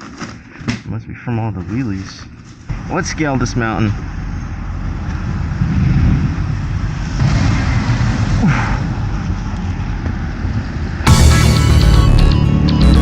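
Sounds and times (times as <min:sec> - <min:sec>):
vehicle traffic: 0:02.3 - 0:13.0
wind on microphone: 0:04.9 - 0:11.0
background music: 0:11.1 - 0:13.0.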